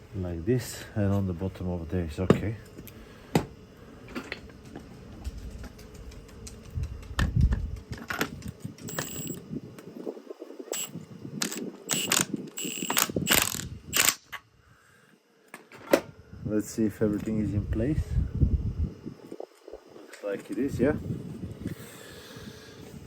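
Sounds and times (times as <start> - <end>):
metallic clicks and ratcheting: 10.8 - 14.3.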